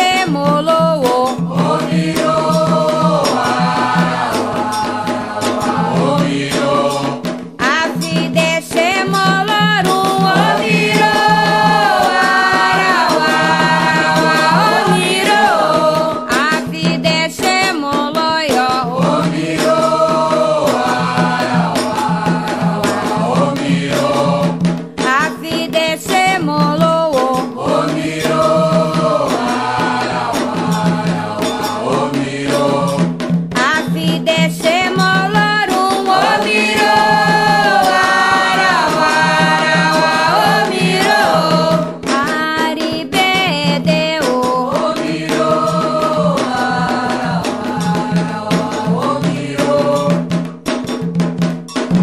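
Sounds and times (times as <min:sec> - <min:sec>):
steady percussion: 0:00.0 - 0:52.0
voices chanting a melody: 0:01.4 - 0:07.3, 0:09.8 - 0:16.3, 0:18.8 - 0:24.6, 0:27.6 - 0:33.1, 0:35.0 - 0:42.0, 0:44.3 - 0:50.2.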